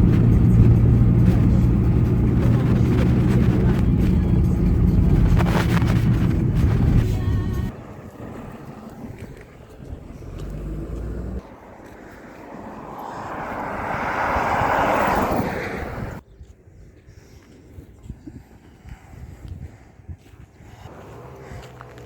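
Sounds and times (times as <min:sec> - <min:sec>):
passing vehicle engine: 0:00.0 - 0:16.2, 0:20.7 - 0:22.0.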